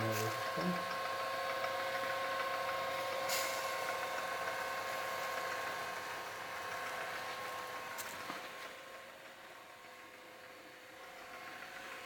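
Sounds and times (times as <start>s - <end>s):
gear motor whining: 0.0s - 8.8s.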